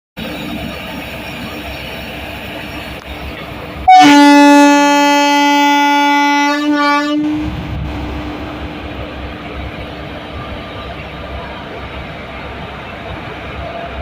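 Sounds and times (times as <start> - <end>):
train rumble: 0.2 - 14.0
train horn blast: 3.8 - 8.8.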